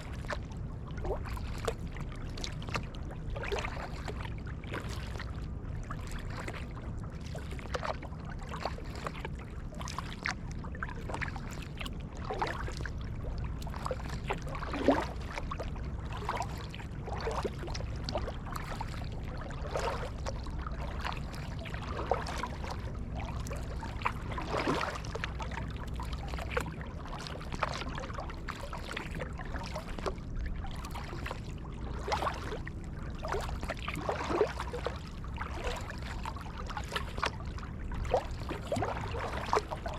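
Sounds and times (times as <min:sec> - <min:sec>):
paddle splashes in water: 0:00.0 - 0:39.9
steady low rumble: 0:00.0 - 0:39.9.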